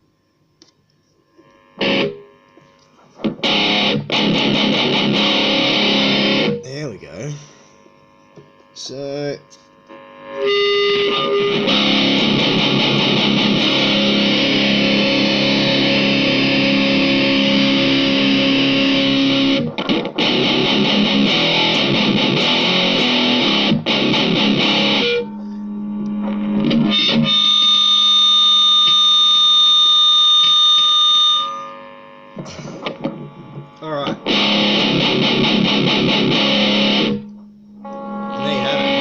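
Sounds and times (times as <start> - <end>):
distorted electric guitar riffs: 1.3 - 39.0.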